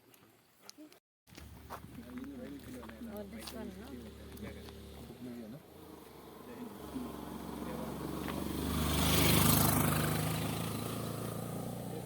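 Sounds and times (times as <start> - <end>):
vehicle driving past: 4.0 - 12.0.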